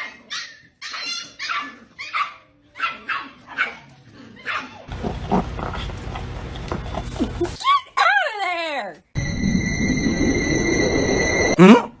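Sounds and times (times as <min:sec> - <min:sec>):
dog yelping barks: 0:00.0 - 0:04.9.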